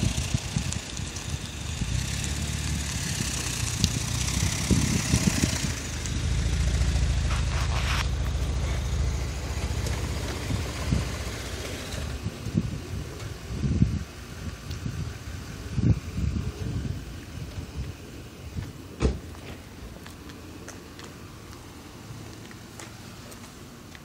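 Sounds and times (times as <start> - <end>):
car engine idling: 0.0 - 15.8.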